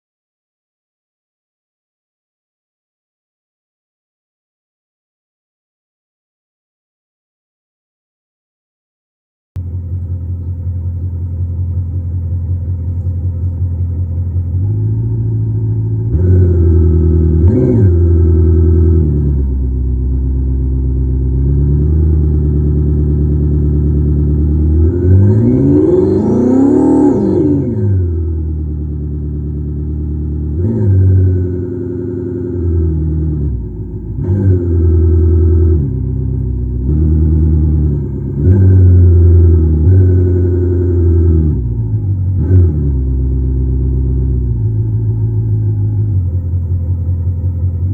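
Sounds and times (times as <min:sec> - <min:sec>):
simulated car exhaust revving: 0:09.6 - 0:47.9.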